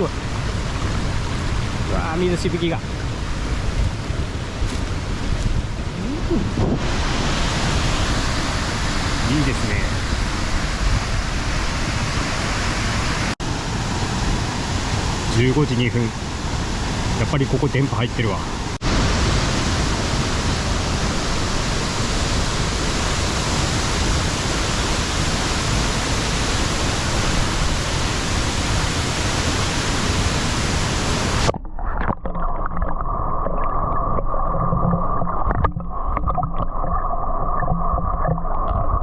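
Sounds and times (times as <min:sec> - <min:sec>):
waterfall rushing: 0:00.0 - 0:17.6, 0:18.2 - 0:31.6
muffled underwater rushing: 0:29.9 - 0:39.0.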